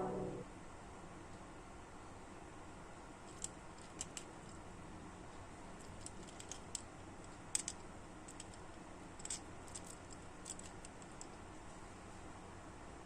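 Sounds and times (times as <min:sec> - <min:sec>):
steady low hum: 0:00.0 - 0:01.0.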